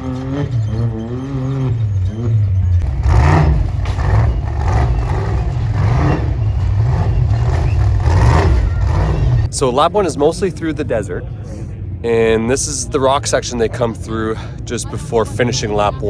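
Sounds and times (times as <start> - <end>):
off-road vehicle engine revving: 0.0 - 11.3.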